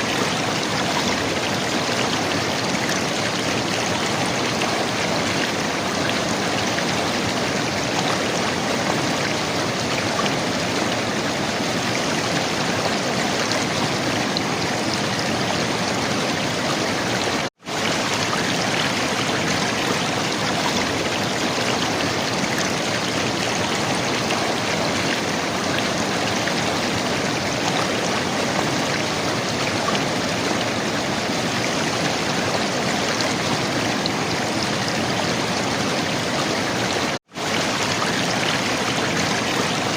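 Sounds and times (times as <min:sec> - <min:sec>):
river water gurgling: 0:00.0 - 0:39.9.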